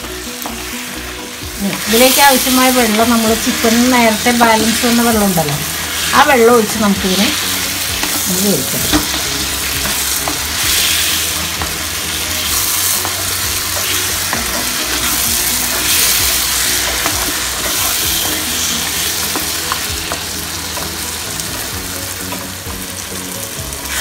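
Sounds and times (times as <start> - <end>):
food sizzling in a frying pan: 0.0 - 24.0
spatula scraping a pan: 5.5 - 21.2.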